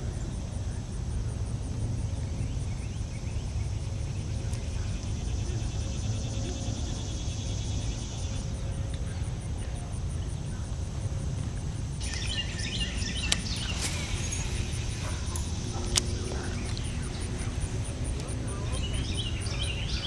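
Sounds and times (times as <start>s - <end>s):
birds chirping: 11.9s - 20.0s
high insect buzz: 12.0s - 20.0s.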